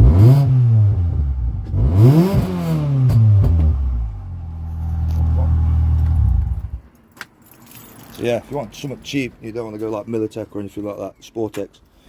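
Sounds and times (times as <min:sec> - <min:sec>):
car engine idling and revving: 0:00.0 - 0:06.9
exhaust cracks: 0:00.0 - 0:06.9.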